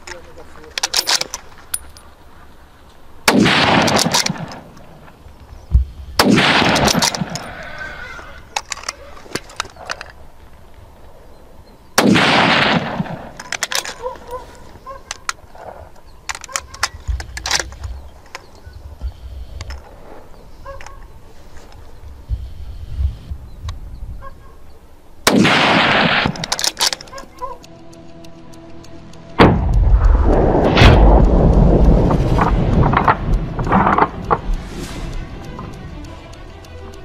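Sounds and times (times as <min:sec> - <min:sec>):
small sharp clicks and knocks: 0:00.0 - 0:07.7, 0:08.4 - 0:11.4, 0:12.0 - 0:23.9, 0:24.6 - 0:37.0
gunshots with long echo: 0:03.2 - 0:05.2, 0:06.1 - 0:07.7, 0:12.0 - 0:14.2, 0:25.2 - 0:27.1, 0:29.4 - 0:35.0.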